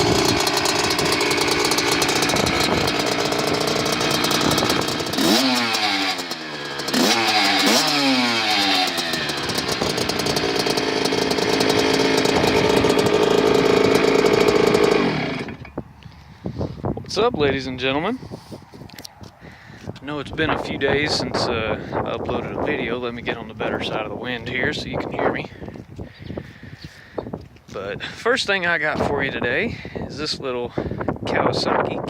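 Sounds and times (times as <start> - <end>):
two-stroke engine idling and revving: 0.0 - 15.8.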